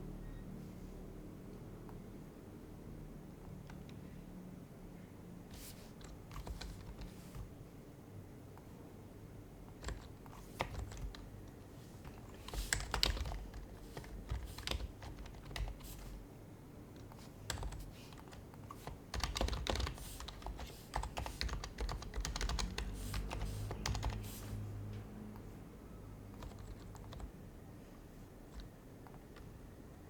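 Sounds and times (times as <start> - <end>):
soft keyboard typing: 5.5 - 7.7, 9.6 - 16.3, 16.9 - 25.5, 26.2 - 27.5, 28.3 - 30.0.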